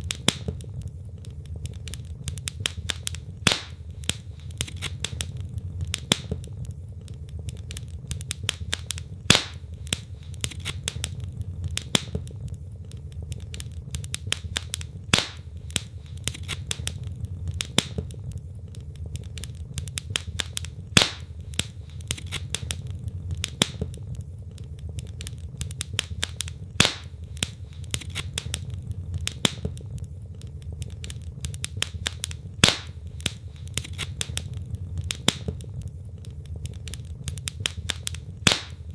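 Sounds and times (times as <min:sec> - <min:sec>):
loud pop from fire: 0:00.0 - 0:00.7, 0:02.5 - 0:06.7, 0:08.2 - 0:12.4, 0:14.0 - 0:18.2, 0:19.1 - 0:24.2, 0:25.7 - 0:29.9, 0:30.8 - 0:35.8, 0:37.3 - 0:38.9
wood fire crackling: 0:00.0 - 0:38.9.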